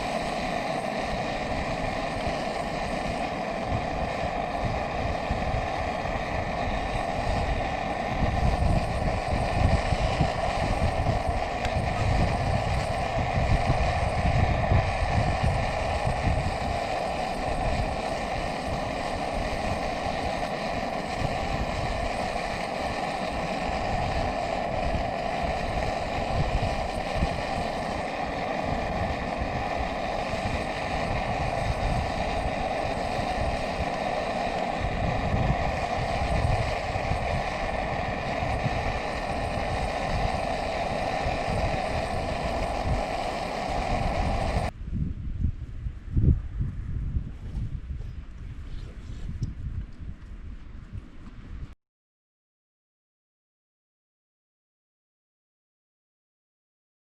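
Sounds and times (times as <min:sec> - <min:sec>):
steady rushing sound: 0:00.0 - 0:44.9
wind buffeting microphone: 0:00.0 - 0:51.7.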